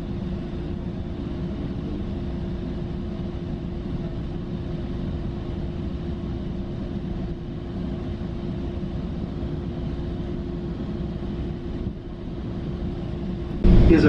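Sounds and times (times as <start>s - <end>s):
constant hum tone: 0.0s - 14.0s
train car interior rumble: 13.5s - 14.0s.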